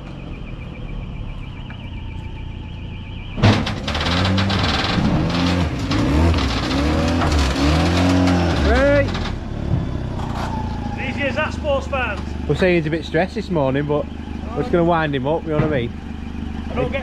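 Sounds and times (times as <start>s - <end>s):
car engine revving: 0.0s - 17.0s
thump: 3.4s - 5.3s.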